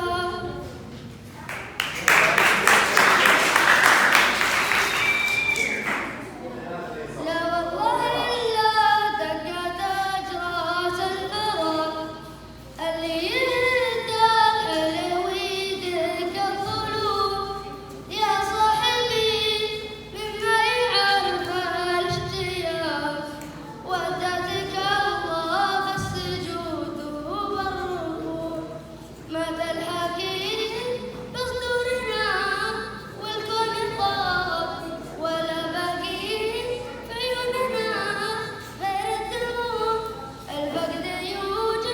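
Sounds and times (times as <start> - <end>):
boy singing unaccompanied: 7.2 - 41.9.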